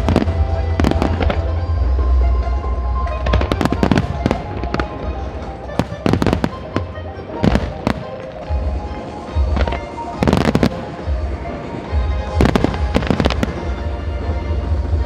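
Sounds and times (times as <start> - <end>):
fireworks bursting: 0.0 - 2.0, 3.0 - 15.0
music playing: 0.0 - 15.0.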